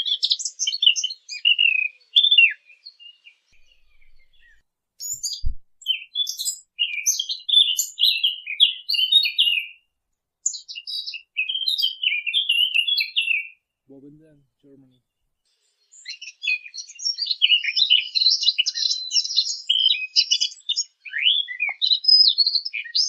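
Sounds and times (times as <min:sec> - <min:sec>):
songbird warbling: 0:00.4 - 0:09.8, 0:10.5 - 0:13.6, 0:16.0 - 0:23.0
low thump: 0:05.2 - 0:05.7.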